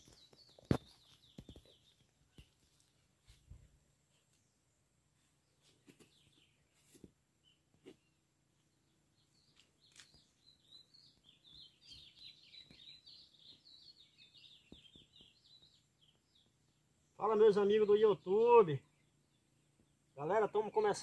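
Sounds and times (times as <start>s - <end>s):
small bird twittering: 9.2s - 17.2s.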